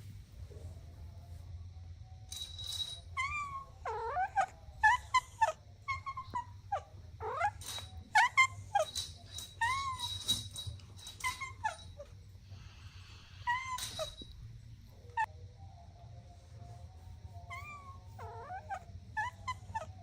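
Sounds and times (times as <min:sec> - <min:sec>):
kittens mewing: 0:03.2 - 0:10.4, 0:11.0 - 0:14.4, 0:17.5 - 0:20.0.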